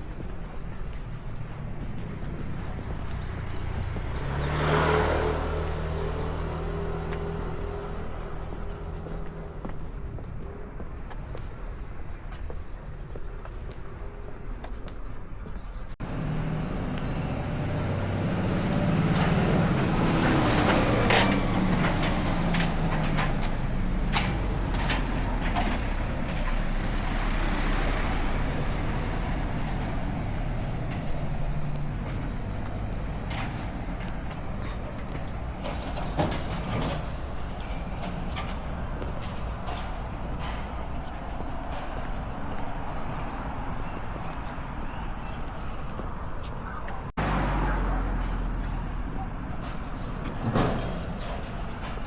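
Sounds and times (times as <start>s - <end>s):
heavy vehicle engine passing: 1.4s - 9.7s, 16.0s - 44.2s, 47.0s - 52.0s.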